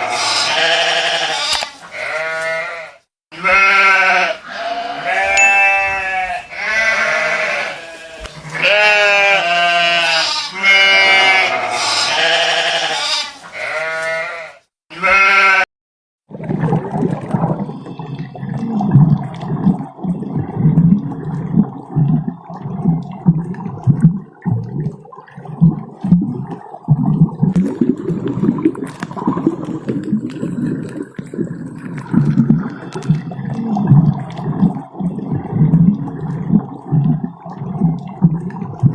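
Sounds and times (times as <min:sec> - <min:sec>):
sheep bleating: 0:00.0 - 0:15.7
low gurgling rumble: 0:16.3 - 0:38.9.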